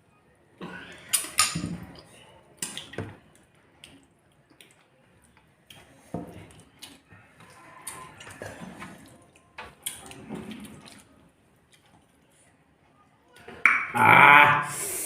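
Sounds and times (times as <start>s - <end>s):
food squelching while eating by hand: 0.8s - 12.5s.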